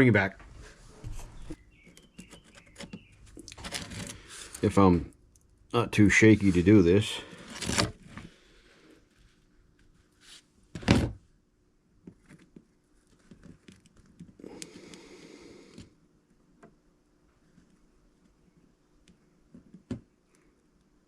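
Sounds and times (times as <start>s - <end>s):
rustling: 0.4s - 4.6s.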